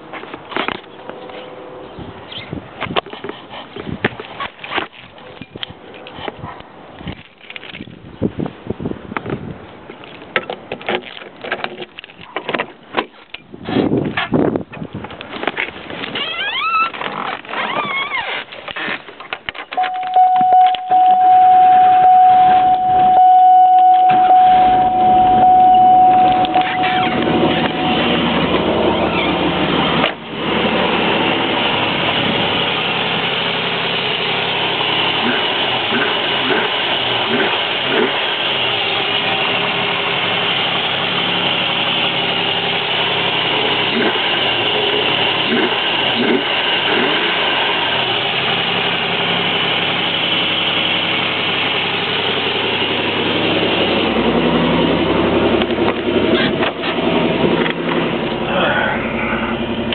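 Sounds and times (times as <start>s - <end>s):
car engine idling: 18.5s - 59.9s
high-pitched whine: 19.8s - 32.6s.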